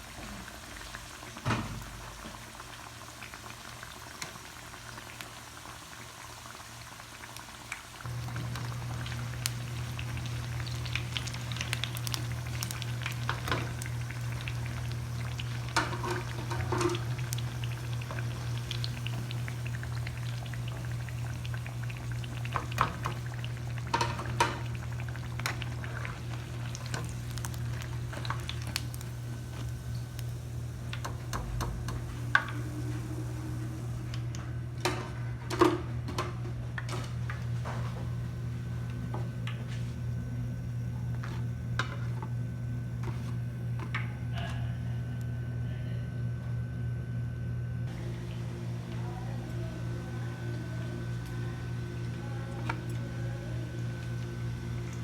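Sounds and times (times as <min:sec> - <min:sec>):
food deep-frying in oil: 0:00.0 - 0:34.2
steady low hum: 0:08.0 - 0:55.0.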